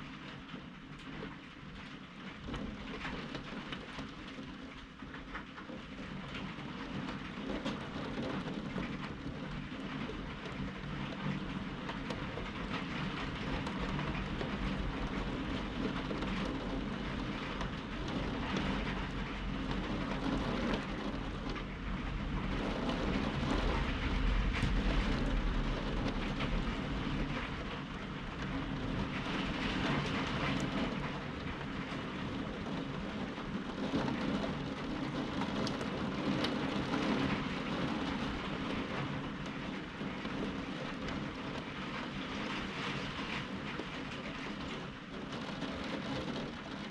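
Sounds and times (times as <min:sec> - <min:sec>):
steady rain: 0:00.0 - 0:46.9
thunder rumbling: 0:09.4 - 0:41.6.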